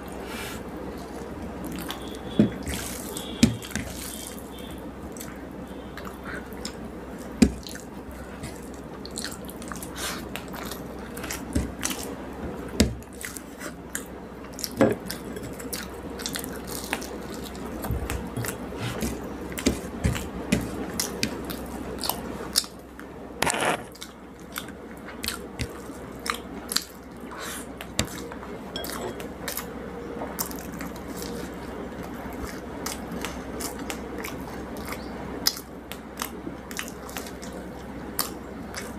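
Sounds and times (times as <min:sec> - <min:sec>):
person chewing food: 0:00.0 - 0:22.8, 0:23.9 - 0:38.9
noisy burst: 0:23.4 - 0:23.9.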